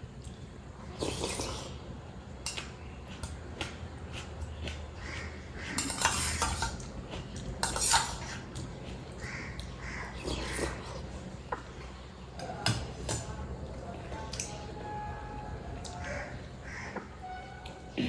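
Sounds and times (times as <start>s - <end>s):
eating sounds: 0.2s - 1.9s, 2.5s - 12.0s
dishes and utensils clinking: 5.8s - 8.4s.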